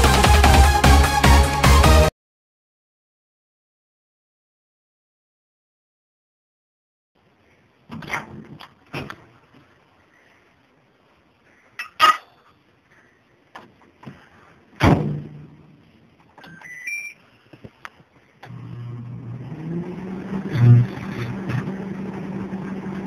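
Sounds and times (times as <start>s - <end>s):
keypad beeps: 16.4s - 17.2s
microwave oven humming: 18.5s - 23.0s.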